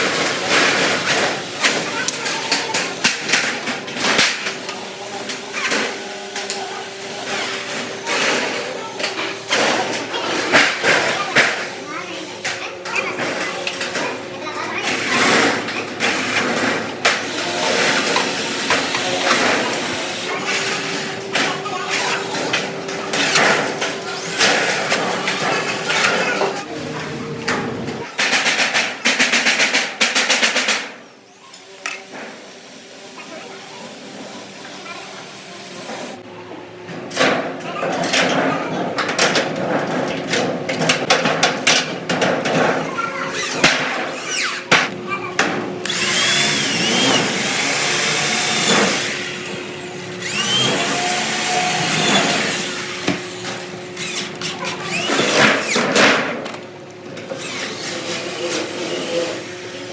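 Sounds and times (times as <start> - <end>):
workshop knocks and clanks: 0.0 - 26.7, 27.4 - 31.0, 35.6 - 59.9.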